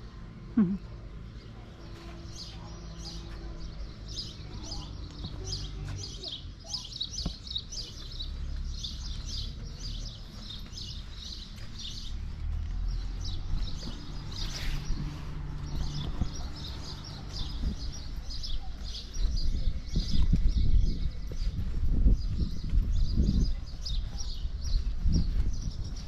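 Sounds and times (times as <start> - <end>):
small birds chirping: 0.0 - 26.0
steady low rumble: 7.8 - 26.0.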